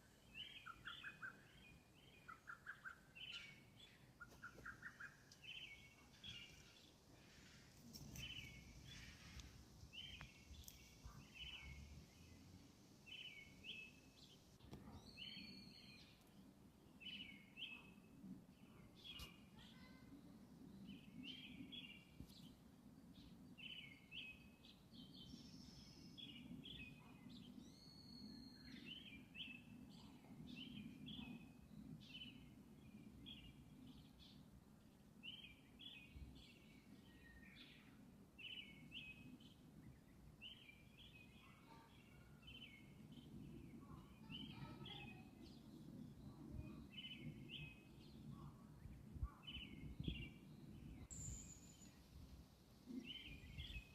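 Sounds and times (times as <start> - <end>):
small bird chirping: 0.3 - 16.3, 49.3 - 52.0.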